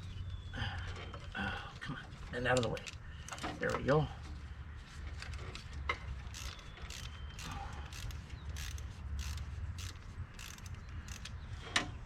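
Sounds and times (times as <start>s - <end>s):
ratchet clicking: 6.3s - 11.4s.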